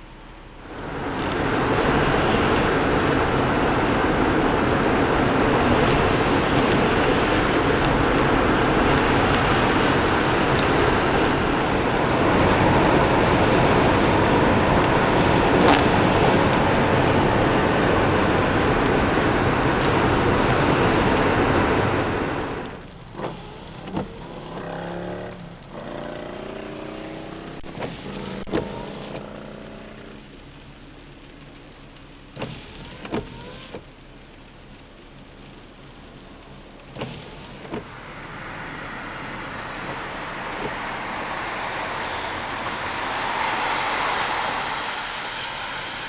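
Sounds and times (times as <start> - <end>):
wind and road noise: 0.0 - 46.0
whine rising in pitch: 38.0 - 46.0.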